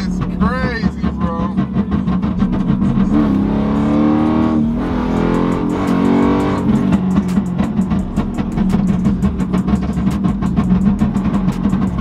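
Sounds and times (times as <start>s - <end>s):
car engine accelerating: 0.0s - 12.0s
music with steady beat: 0.0s - 12.0s.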